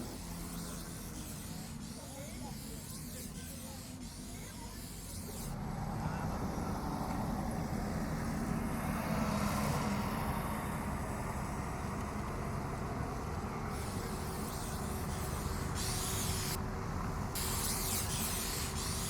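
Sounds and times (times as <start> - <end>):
spray paint can hissing: 0.0 - 5.5, 13.7 - 16.6, 17.4 - 19.0
city traffic rumble: 0.0 - 19.0.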